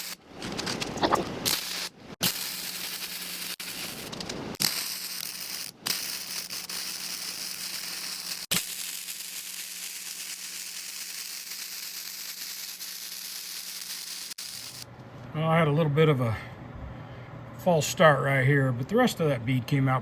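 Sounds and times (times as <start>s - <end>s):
arc welding sizzle: 0.0s - 0.2s, 0.8s - 14.9s.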